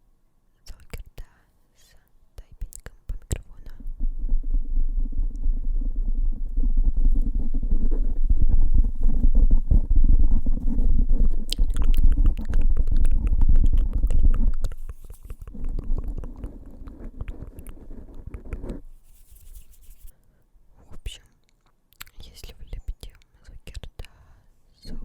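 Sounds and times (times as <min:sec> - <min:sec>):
fingertips tapping on microphone: 0:06.4 - 0:20.1.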